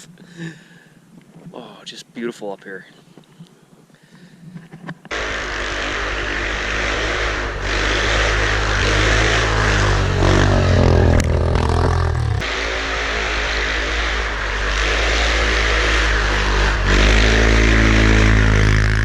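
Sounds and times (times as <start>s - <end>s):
atv engine revving: 5.1s - 19.0s.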